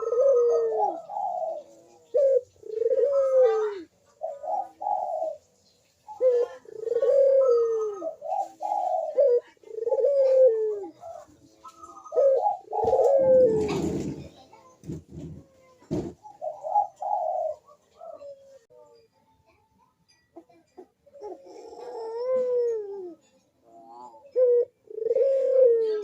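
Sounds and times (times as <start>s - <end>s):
dove cooing: 0.0s - 18.7s, 20.4s - 26.0s.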